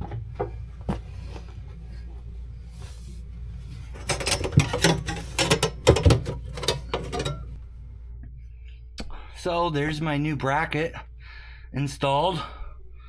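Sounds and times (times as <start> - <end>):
metal parts rattling: 4.0 - 7.6.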